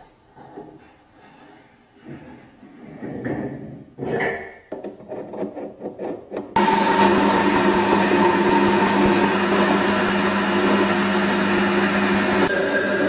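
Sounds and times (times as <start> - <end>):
power tool motor whining: 6.6 - 13.0.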